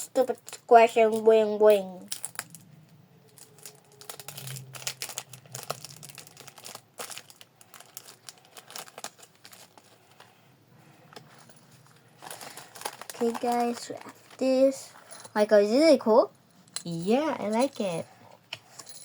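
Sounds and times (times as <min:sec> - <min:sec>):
wrapper crinkling and tearing: 0:02.0 - 0:10.3, 0:12.2 - 0:14.6.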